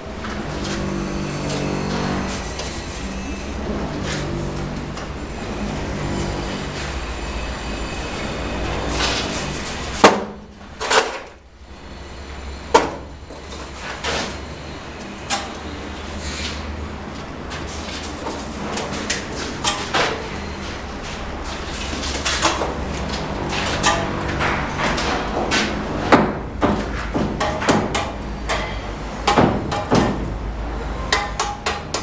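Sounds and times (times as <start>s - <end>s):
steady low hum: 11.4s - 31.8s.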